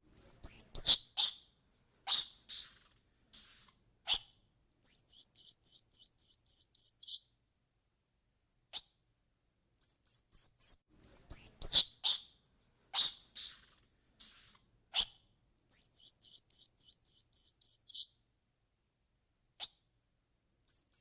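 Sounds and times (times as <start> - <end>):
high-pitched animal chirps: 0.2 - 1.4, 2.1 - 4.2, 4.8 - 7.2, 9.8 - 12.3, 13.0 - 15.1, 15.7 - 18.1, 20.7 - 21.0.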